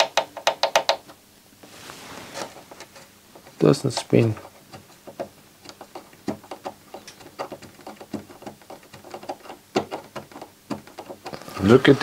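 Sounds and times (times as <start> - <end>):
light clicks and taps: 2.8 - 11.5.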